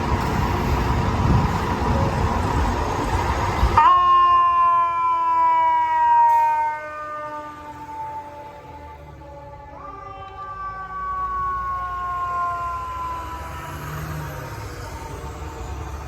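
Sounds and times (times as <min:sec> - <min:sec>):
fire truck engine and road noise: 0:00.0 - 0:16.0
mechanical fire truck siren: 0:03.8 - 0:16.0.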